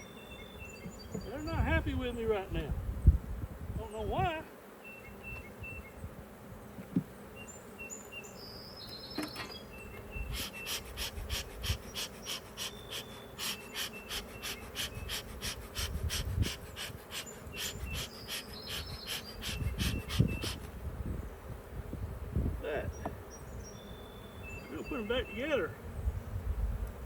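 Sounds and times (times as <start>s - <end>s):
birds chirping: 0.0s - 2.7s, 3.8s - 21.5s, 22.6s - 26.4s
bees buzzing: 0.0s - 27.0s
rhythmic hissing pulse: 10.3s - 20.7s.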